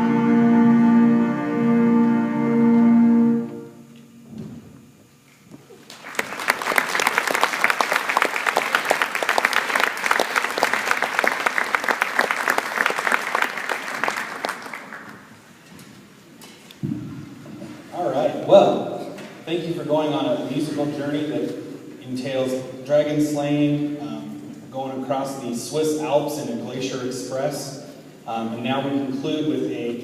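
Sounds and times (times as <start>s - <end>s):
audience applause: 5.8s - 15.4s.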